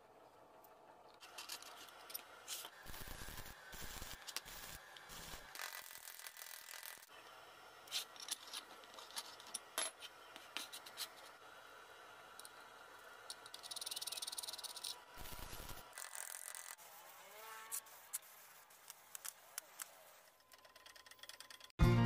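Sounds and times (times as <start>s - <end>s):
steel parts clinking and scraping: 1.2s - 2.8s, 7.9s - 10.2s
welding arc hissing and crackling: 2.4s - 7.1s, 15.2s - 16.8s.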